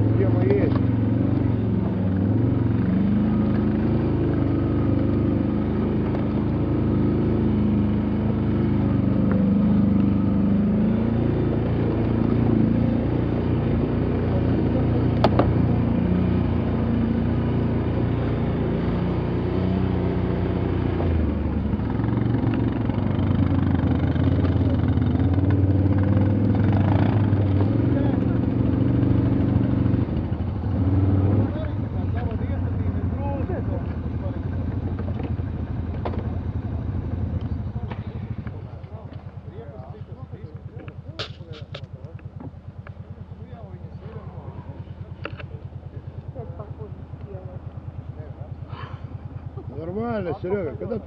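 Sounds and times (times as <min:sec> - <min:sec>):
off-road vehicle engine: 0:00.0 - 0:51.0
sharp click: 0:41.2 - 0:42.2.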